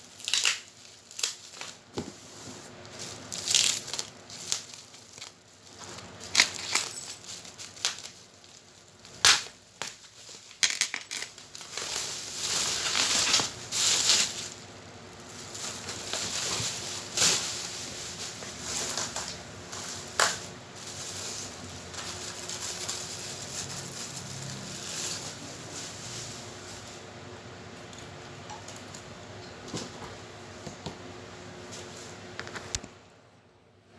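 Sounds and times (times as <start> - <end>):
packaging crinkling: 0.1 - 26.9.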